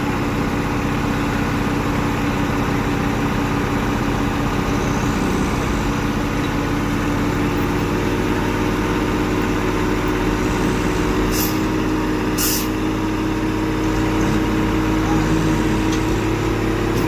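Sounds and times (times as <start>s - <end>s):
truck engines running: 0.0s - 17.0s
air hissing bursts: 10.5s - 11.7s, 12.4s - 12.8s.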